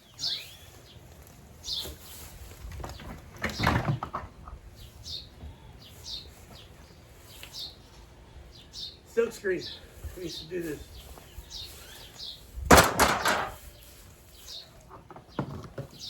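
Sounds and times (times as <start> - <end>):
small birds chirping: 0.0 - 12.7, 13.3 - 16.0
knocks and clatter: 2.8 - 4.6, 12.7 - 13.6.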